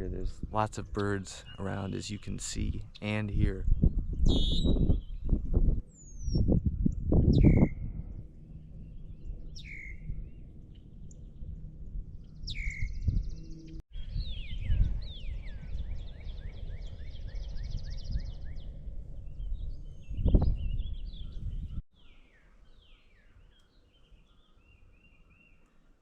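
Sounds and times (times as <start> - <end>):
low microphone rumble: 0.0 - 21.8
songbirds calling and singing: 0.0 - 26.0
buzzy bird trill: 0.9 - 5.3, 8.5 - 11.5, 12.2 - 23.5.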